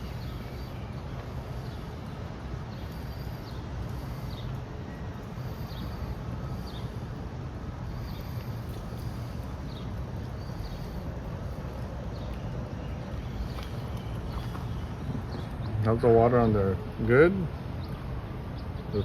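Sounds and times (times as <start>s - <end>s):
outdoor hiss and low hum: 0.0s - 19.0s
bird chirping: 8.0s - 16.6s.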